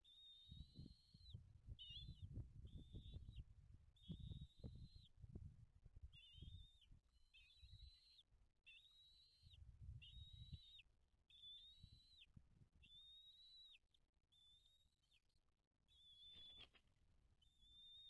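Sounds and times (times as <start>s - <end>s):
bird giving thin drawn-out calls: 15.9s - 16.8s.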